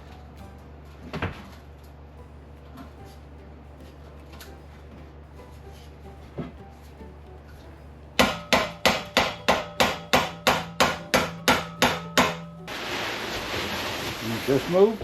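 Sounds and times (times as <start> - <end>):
hammer striking metal: 8.2 - 12.7.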